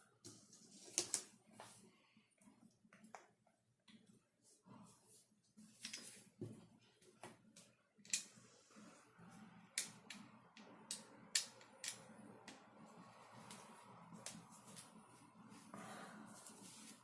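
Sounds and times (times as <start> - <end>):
faint steady hum: 1.6 - 17.0
plastic parts clicking and tapping: 9.8 - 12.7.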